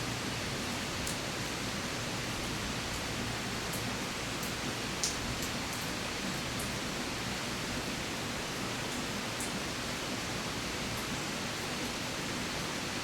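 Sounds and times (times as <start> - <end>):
steady rain hiss: 0.0 - 13.0
faint drip ticks: 3.7 - 5.9.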